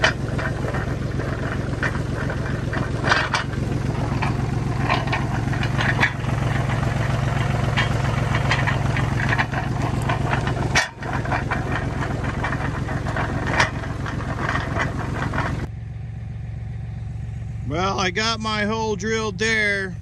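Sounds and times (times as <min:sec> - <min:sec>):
clanks and rattles: 0:00.0 - 0:15.7
tractor engine running: 0:00.0 - 0:20.0.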